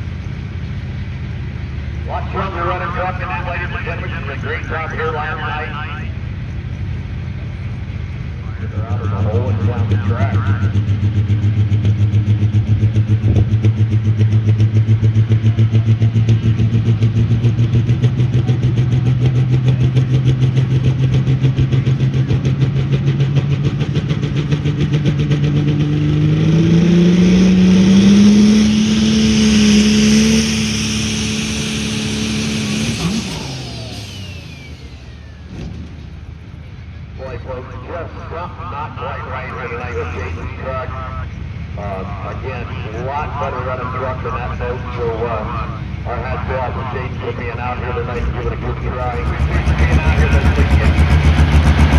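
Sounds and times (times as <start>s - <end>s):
truck engine revving: 0.0s - 51.9s
announcer speaking: 2.0s - 6.3s, 8.4s - 10.8s, 37.2s - 51.9s.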